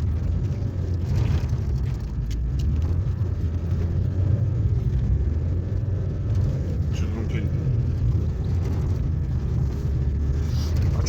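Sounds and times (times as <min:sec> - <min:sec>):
car engine and tyres rumbling: 0:00.0 - 0:11.0
car underside scraping snow: 0:07.8 - 0:11.0.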